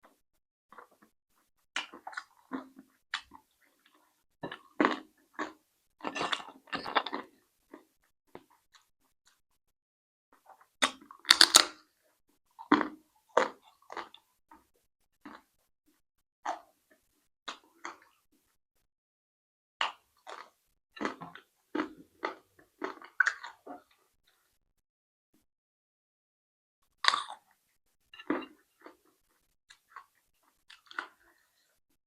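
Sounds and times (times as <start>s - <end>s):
person chewing crunchy food: 0.0s - 9.4s, 10.4s - 15.6s, 19.8s - 24.4s, 26.9s - 27.6s, 28.2s - 31.7s.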